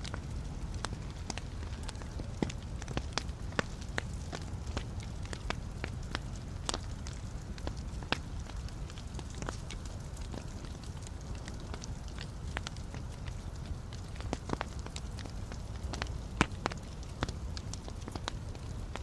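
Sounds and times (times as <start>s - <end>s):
low rumble of flames: 0.0s - 19.0s
wood crackling and popping: 0.0s - 19.0s.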